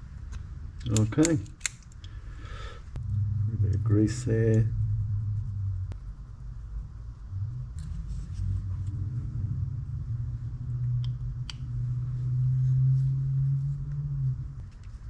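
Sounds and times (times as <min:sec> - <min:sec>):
steady low hum: 0:00.0 - 0:15.0
small sharp clicks: 0:00.3 - 0:02.2.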